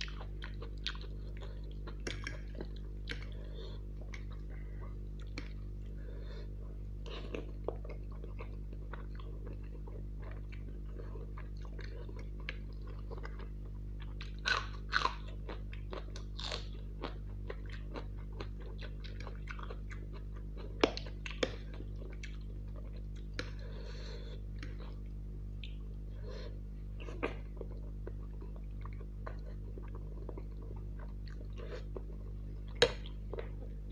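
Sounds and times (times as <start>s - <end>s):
wet chewing and mouth clicks: 0.0s - 5.8s.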